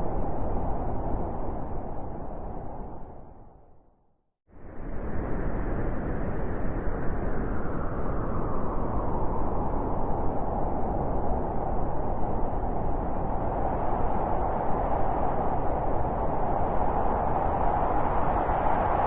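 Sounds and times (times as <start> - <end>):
wind blowing: 4.6 - 19.0.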